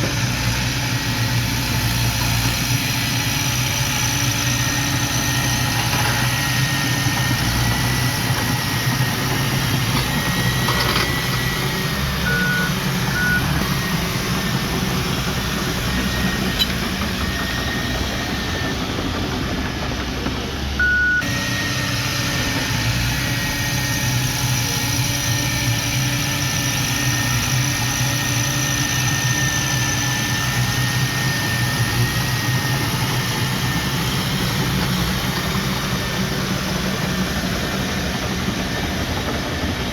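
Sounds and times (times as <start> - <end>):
heavy diesel machinery running: 0.0 - 39.9
short beeps: 12.2 - 13.6, 20.8 - 21.3.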